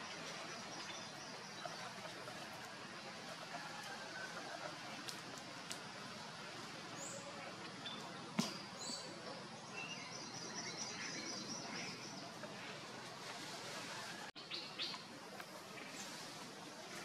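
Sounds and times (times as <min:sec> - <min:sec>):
small birds chirping: 0:00.0 - 0:03.1, 0:06.9 - 0:17.0
outdoor background noise: 0:00.0 - 0:17.0.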